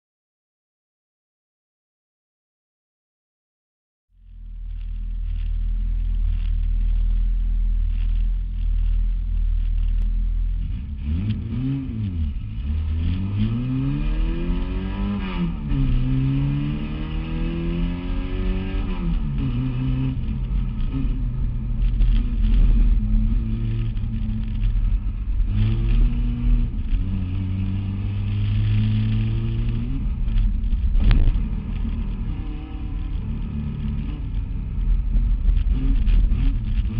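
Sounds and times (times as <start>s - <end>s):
race car engine revving: 10.6s - 36.9s.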